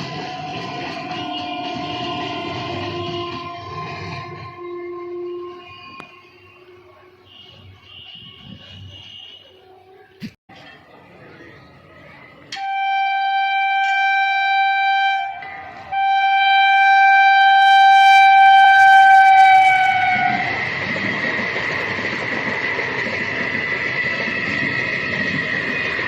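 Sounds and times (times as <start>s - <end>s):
train wheels rumbling on rail: 0.0s - 7.0s, 12.5s - 26.0s
train horn blasts: 0.0s - 10.1s, 12.6s - 20.7s.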